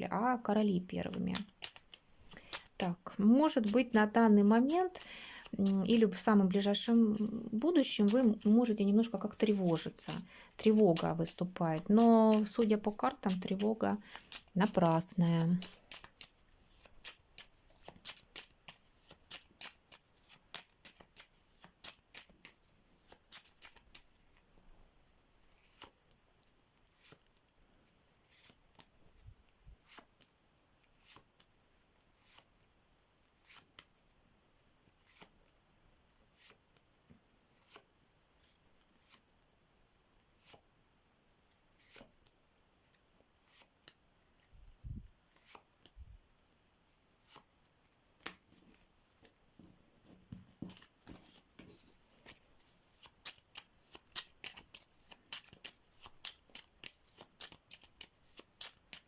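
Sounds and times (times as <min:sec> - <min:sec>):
deck of cards shuffled: 0:00.8 - 0:24.4, 0:34.9 - 0:35.5, 0:41.7 - 0:42.2, 0:48.2 - 0:59.0
playing cards snapping: 0:01.4 - 0:02.7, 0:53.0 - 0:59.0.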